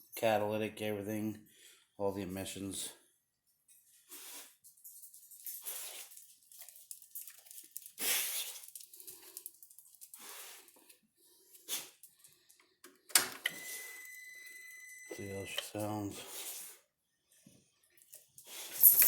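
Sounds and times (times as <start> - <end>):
rustling and handling noises: 3.5 - 12.9.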